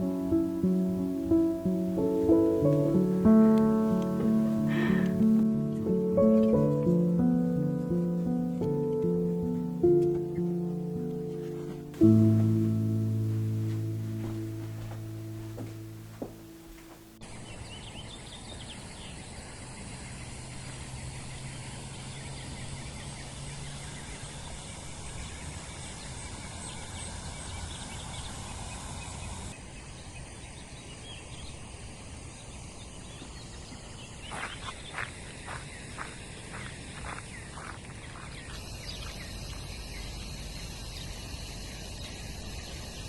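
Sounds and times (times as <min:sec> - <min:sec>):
background music: 0:00.0 - 0:17.2
low hum: 0:00.0 - 0:17.2
outdoor background noise: 0:00.0 - 0:43.0
bird chirps: 0:33.0 - 0:43.0.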